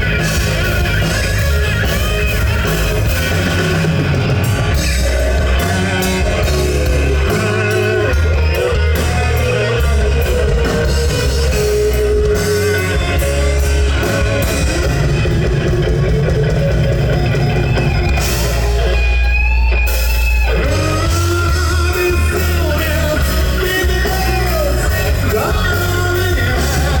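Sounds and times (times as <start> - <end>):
heavy rock band playing: 0.0 - 27.0
vocalist singing: 4.5 - 14.0, 20.5 - 27.0.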